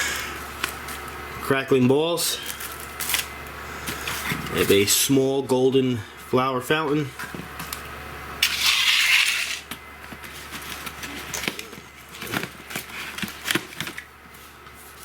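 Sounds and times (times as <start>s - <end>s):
packaging rustling: 10.1s - 15.0s.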